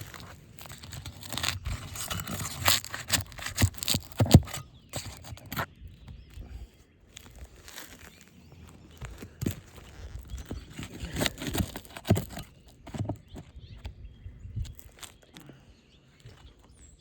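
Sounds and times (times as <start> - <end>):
roof shingles scraped and torn: 0.0 - 5.8, 7.1 - 13.8.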